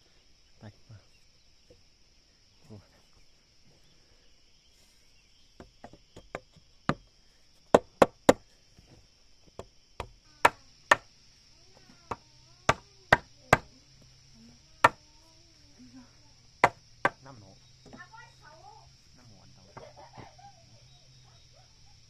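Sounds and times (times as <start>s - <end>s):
insects humming: 0.0s - 22.0s
tool striking wood: 5.6s - 7.1s, 7.7s - 8.4s, 9.6s - 11.1s, 12.1s - 13.7s, 16.6s - 17.2s.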